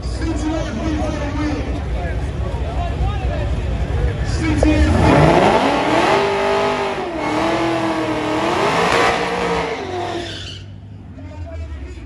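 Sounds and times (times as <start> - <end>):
car engine revving: 4.2 - 11.0.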